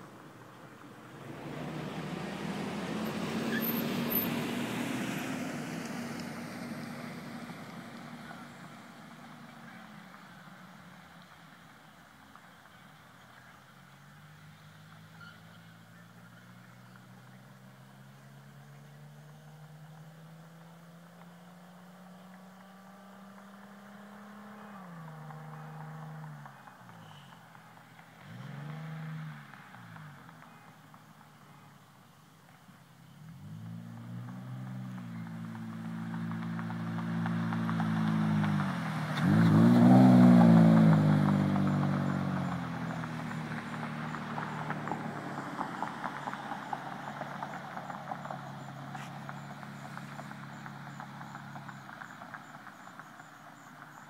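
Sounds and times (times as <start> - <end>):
car exhaust accelerating: 0.6 - 31.7, 33.0 - 54.0.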